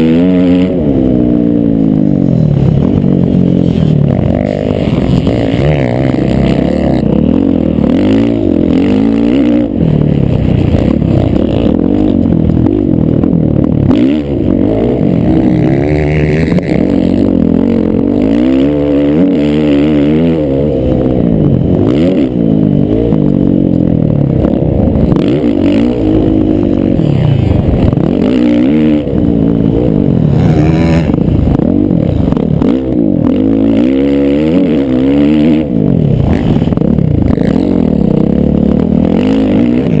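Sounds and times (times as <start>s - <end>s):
motocross bike engines revving: 0.0s - 40.0s.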